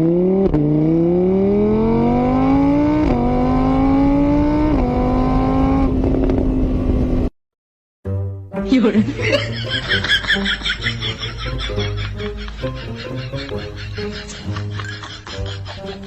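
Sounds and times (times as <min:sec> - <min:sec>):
car engine accelerating: 0:00.0 - 0:07.3.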